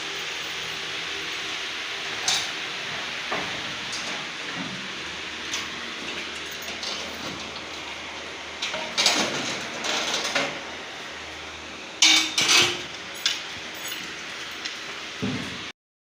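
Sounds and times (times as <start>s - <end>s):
steady background hum: 0.0s - 15.7s
metal pots and utensils clanking: 5.4s - 7.8s, 8.6s - 10.6s, 12.0s - 14.3s.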